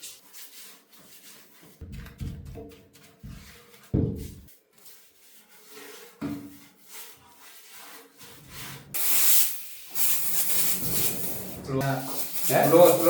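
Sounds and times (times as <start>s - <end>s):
hand rubbing and scraping: 0.0s - 13.0s
loud hiss: 9.0s - 13.0s.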